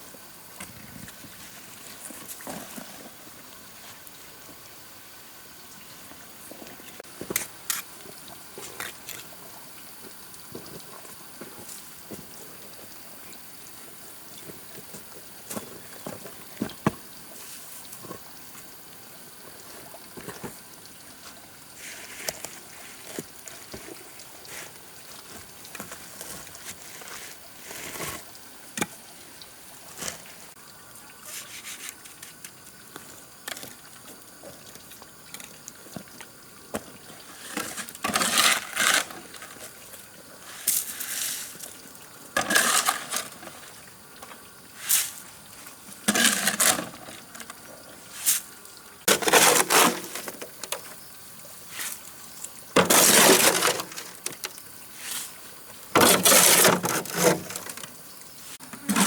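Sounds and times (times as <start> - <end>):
stones knocking and scraping: 49.1 - 50.8, 52.8 - 54.5, 56.0 - 57.9.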